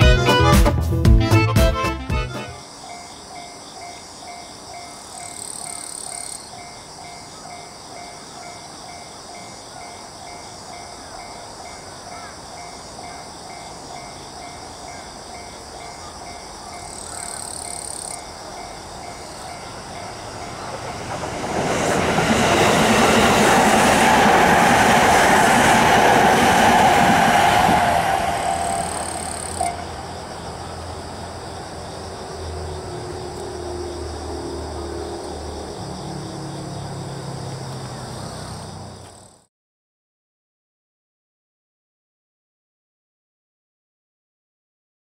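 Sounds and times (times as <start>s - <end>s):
train passing over rails: 18.3s - 38.9s.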